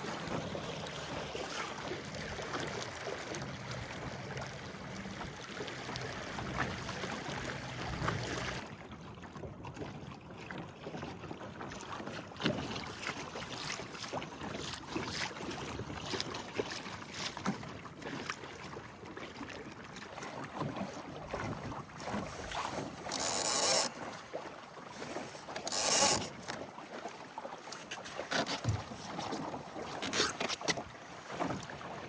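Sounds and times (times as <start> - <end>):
water lapping against a hull: 0.0 - 32.0
boat knocking and creaking: 20.6 - 24.2, 25.4 - 26.8, 27.6 - 31.8.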